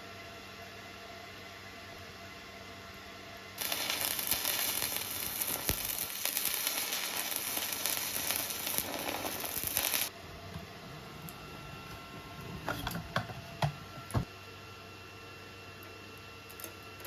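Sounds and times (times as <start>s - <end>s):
arc welding crackling sizzle: 3.5s - 14.3s, 15.4s - 17.0s
low hum: 10.1s - 14.3s.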